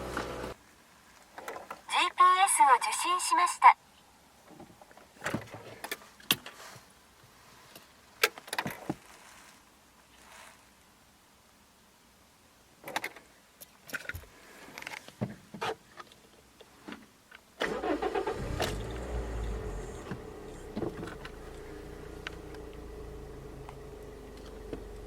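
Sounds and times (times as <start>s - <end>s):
car engine starting and idling: 17.6s - 25.0s.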